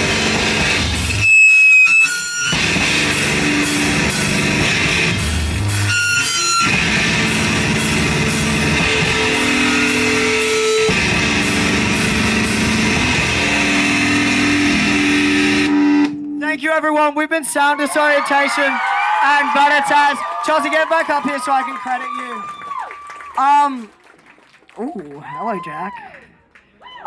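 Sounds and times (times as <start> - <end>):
rock band with distorted guitar: 0.0 - 16.4.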